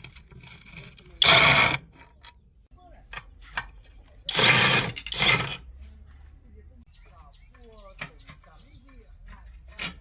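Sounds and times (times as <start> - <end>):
mechanical ratcheting: 0.0 - 1.8, 4.3 - 5.6.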